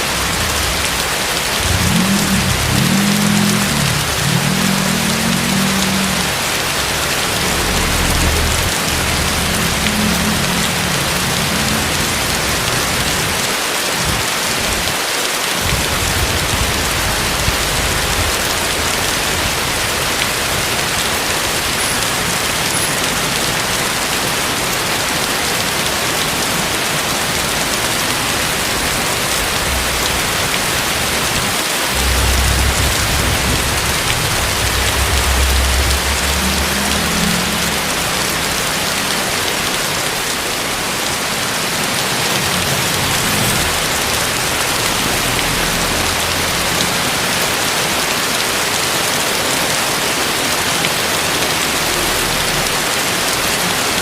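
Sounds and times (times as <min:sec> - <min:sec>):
low rumble: 0:00.0 - 0:14.2, 0:15.6 - 0:22.2, 0:28.6 - 0:41.4
heavy rain falling: 0:00.0 - 0:54.0.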